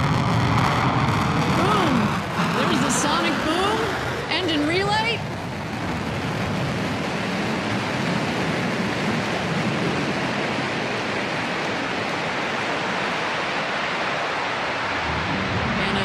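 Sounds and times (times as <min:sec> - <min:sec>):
rocket engine roaring: 0:00.0 - 0:16.0.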